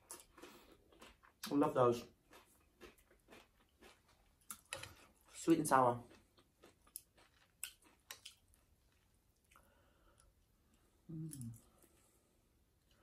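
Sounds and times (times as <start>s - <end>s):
close-up chewing: 0.0s - 5.4s, 6.0s - 10.8s
person humming: 11.1s - 11.7s.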